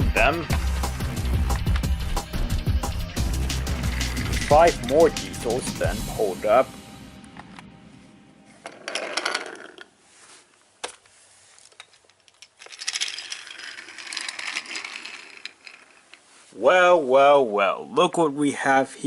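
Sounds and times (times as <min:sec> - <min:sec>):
toy trains rolling on track: 0:03.2 - 0:05.6, 0:08.7 - 0:09.9, 0:11.7 - 0:16.3.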